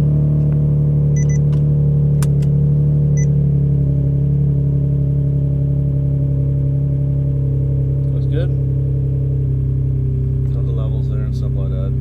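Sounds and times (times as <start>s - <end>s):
car engine idling: 0.0s - 12.0s
short electronic beeps: 1.2s - 1.4s.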